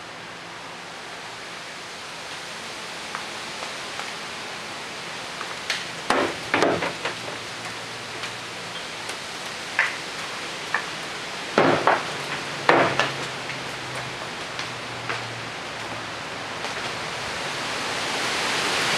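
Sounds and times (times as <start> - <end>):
rushing wind: 0.0 - 18.9
objects rattling and knocking: 6.1 - 7.4.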